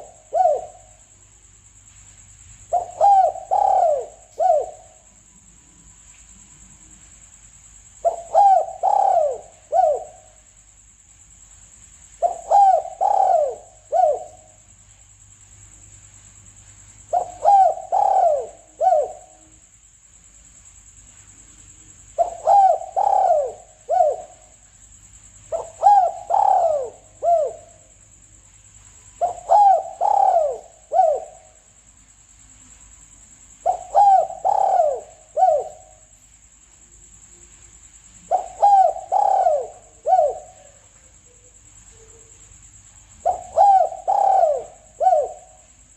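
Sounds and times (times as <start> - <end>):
dove cooing: 0.0 - 1.1, 2.7 - 5.1, 8.0 - 10.5, 12.2 - 14.6, 17.0 - 19.6, 22.1 - 24.6, 25.4 - 28.0, 29.2 - 31.7, 33.6 - 36.2, 38.2 - 42.5, 43.1 - 45.8
faint high-pitched hiss: 0.0 - 45.9.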